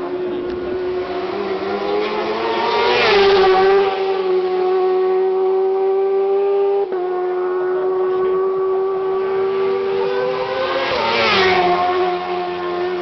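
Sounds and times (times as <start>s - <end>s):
racing motorcycle passing: 0.0s - 13.0s.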